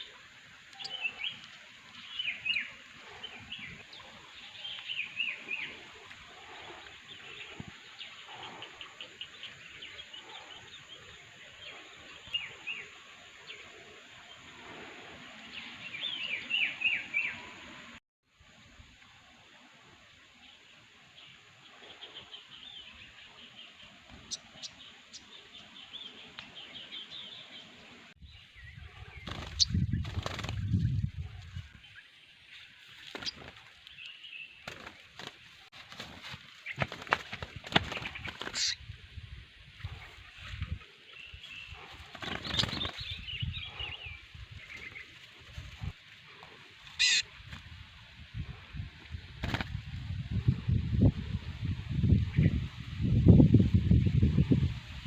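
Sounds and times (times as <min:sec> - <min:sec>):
small bird twittering: 0:37.7 - 0:38.8, 0:46.9 - 0:47.3.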